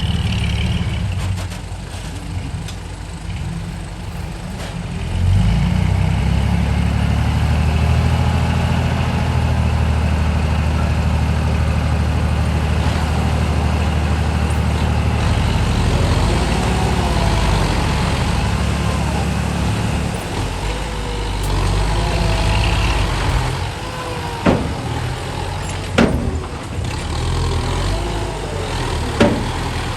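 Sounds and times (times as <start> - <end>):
diesel engine running: 0.0 - 29.9
sharp bangs: 12.4 - 29.9.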